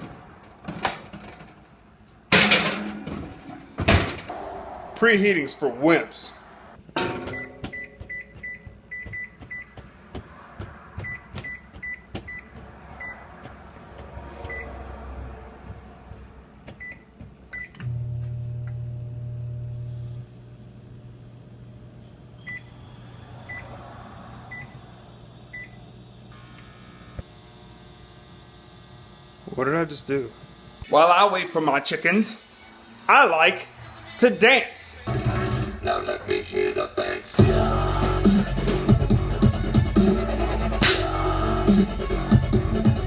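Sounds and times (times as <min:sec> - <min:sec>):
oven control panel beeps: 0:07.3 - 0:09.8, 0:22.4 - 0:22.8
oven humming: 0:15.6 - 0:32.8.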